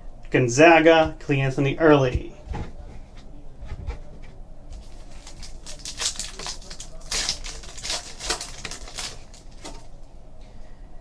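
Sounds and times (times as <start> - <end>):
cards rustling and flicking: 4.8 - 10.0.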